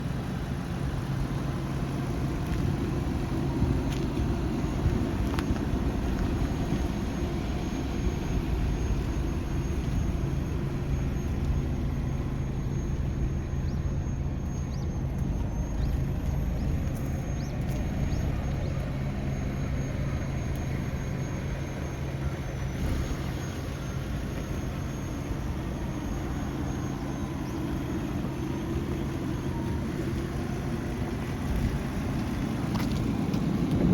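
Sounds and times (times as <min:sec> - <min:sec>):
car engine running steadily: 0:00.0 - 0:33.9.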